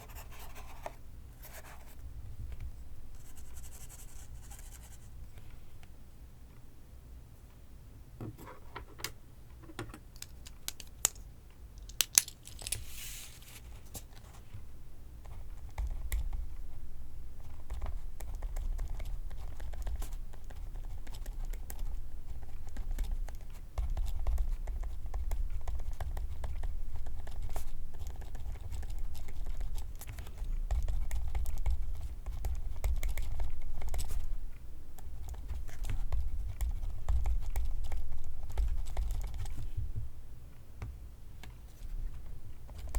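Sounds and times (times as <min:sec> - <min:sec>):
pencil writing on paper: 0:00.0 - 0:01.9
paper rustle: 0:12.4 - 0:14.2.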